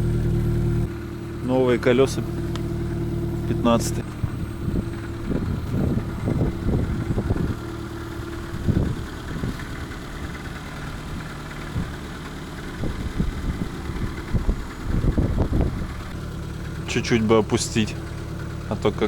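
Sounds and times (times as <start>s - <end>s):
car engine idling: 0.0s - 19.0s
low thumps: 2.3s - 16.8s.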